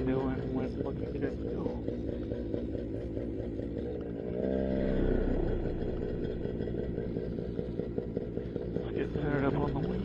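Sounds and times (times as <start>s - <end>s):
paramotor engine idling: 0.0s - 10.0s.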